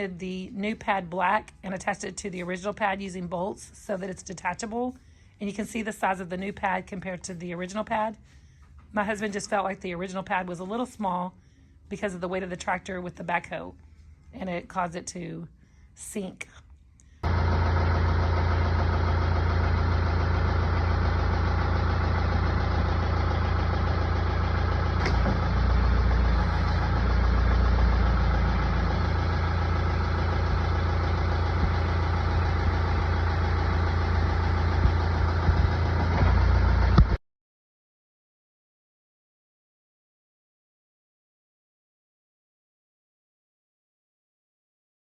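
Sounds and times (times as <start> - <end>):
tractor diesel engine running: 17.2 - 37.2.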